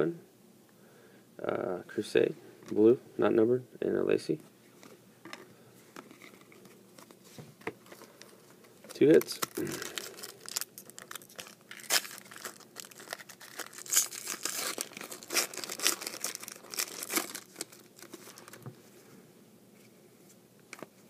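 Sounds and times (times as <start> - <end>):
card pack wrapper tearing and crinkling: 7.8 - 18.6.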